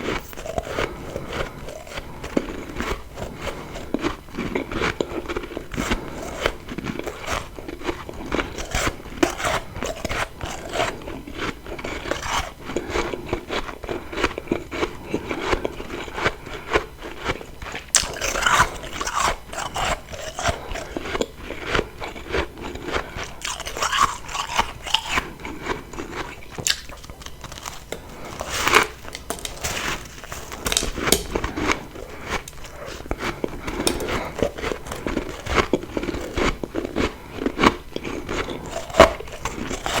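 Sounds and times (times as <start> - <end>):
biting and chewing frost: 0.0 - 40.0.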